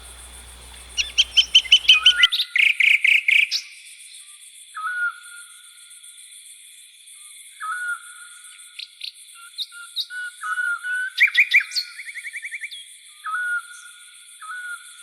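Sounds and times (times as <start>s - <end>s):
loud bird chirping: 0.0s - 2.3s
short whistled bird call: 0.0s - 2.3s
steady high-pitched buzz: 0.0s - 2.3s.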